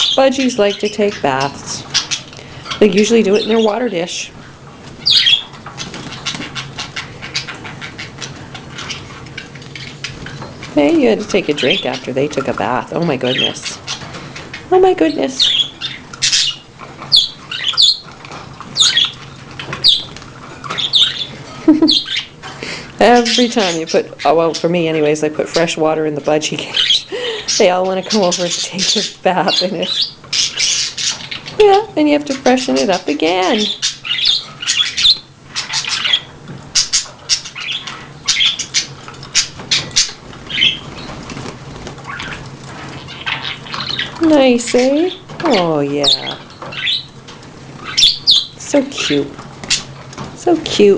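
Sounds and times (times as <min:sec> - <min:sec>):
budgerigars chirping harshly: 0:00.0 - 0:04.4, 0:05.0 - 0:47.2, 0:47.8 - 0:50.8
wings fluttering: 0:00.0 - 0:22.5, 0:32.3 - 0:50.9
bird chirps: 0:05.0 - 0:10.6, 0:14.6 - 0:18.1, 0:18.8 - 0:22.3, 0:32.8 - 0:41.2, 0:47.8 - 0:49.8.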